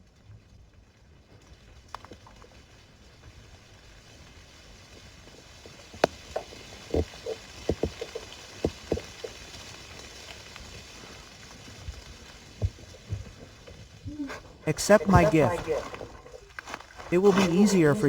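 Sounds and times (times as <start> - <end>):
short knocks and crackles: 5.5 - 9.7, 12.2 - 14.0.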